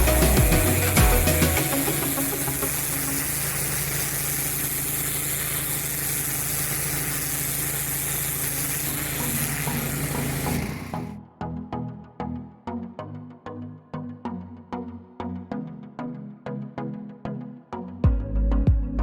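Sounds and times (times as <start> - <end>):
music with plucked notes: 0.0 - 2.6
high-pressure water spray hissing: 0.0 - 11.1
pressure washer engine running: 0.0 - 11.1.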